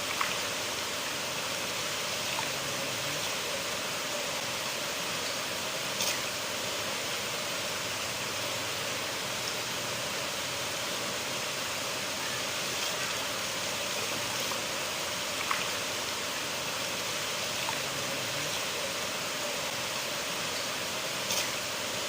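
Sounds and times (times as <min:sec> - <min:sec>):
river water rushing: 0:00.0 - 0:22.0
faint splashes: 0:12.2 - 0:16.4, 0:17.0 - 0:19.7.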